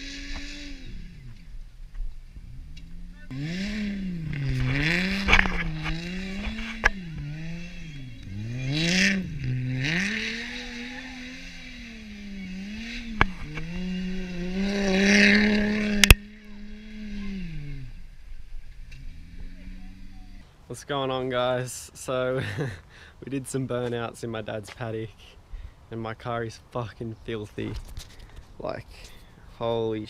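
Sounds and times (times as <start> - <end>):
wheels spinning in dirt: 0.0 - 20.4
car engine revving hard: 3.2 - 20.3.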